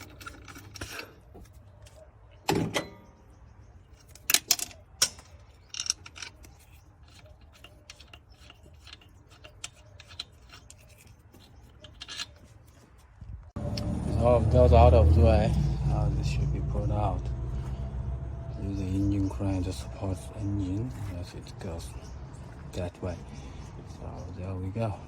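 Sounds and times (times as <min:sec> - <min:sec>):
metal tools knocking and clicking: 0:00.0 - 0:01.2, 0:03.9 - 0:12.6.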